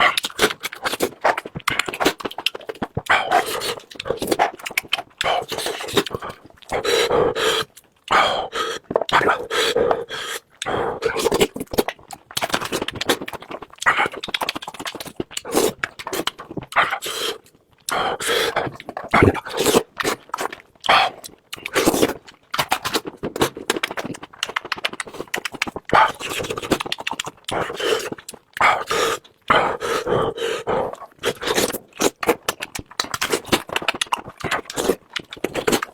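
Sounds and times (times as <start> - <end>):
person chewing loudly: 0.0 - 35.9.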